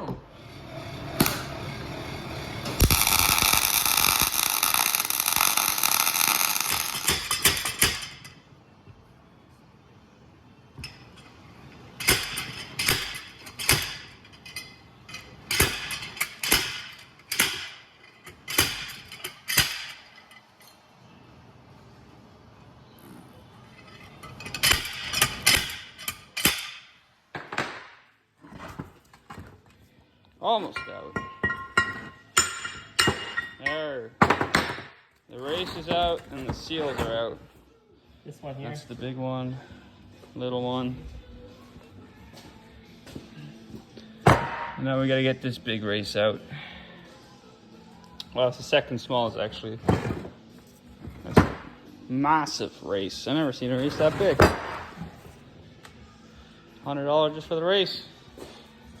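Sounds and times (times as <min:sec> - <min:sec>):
electric welding arc crackling: 0:00.8 - 0:08.0.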